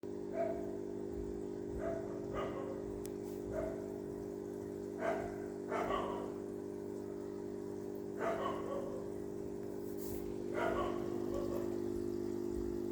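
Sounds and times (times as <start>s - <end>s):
dog barking: 0.3s - 0.8s, 1.8s - 4.0s, 5.0s - 6.4s, 8.2s - 9.2s, 10.5s - 11.8s.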